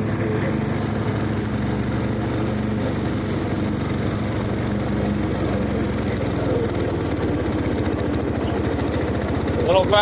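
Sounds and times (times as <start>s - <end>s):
riding mower engine running: 0.0s - 10.0s.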